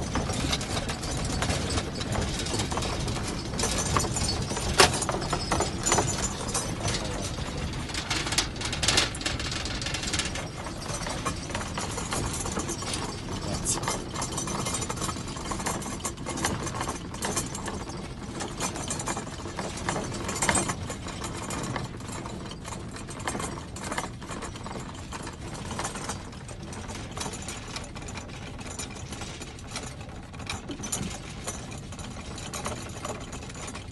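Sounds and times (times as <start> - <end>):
mechanical rattling: 0.0 - 19.0.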